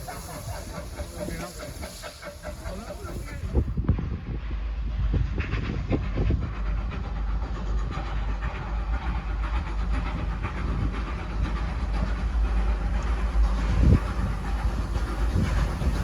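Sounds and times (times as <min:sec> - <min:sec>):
train wheels rumbling on rails: 0:00.0 - 0:16.0
train knocks: 0:07.2 - 0:16.0
clicking of wheels on rails: 0:07.4 - 0:16.0.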